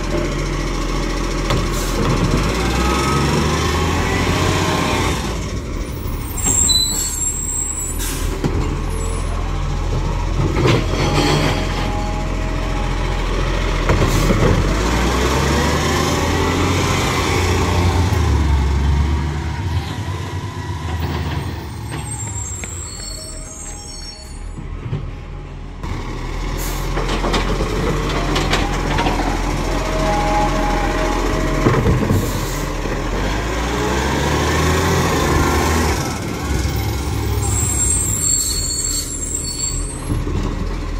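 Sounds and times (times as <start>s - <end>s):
garbage truck engine running: 0.0s - 23.7s, 24.6s - 40.9s
air brakes hissing: 1.6s - 2.1s, 6.1s - 8.5s, 32.1s - 32.8s.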